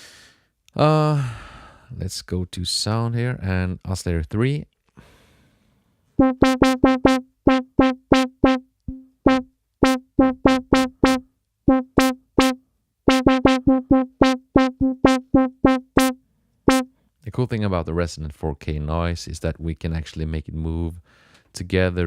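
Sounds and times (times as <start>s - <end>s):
staccato synth notes: 6.2s - 16.9s.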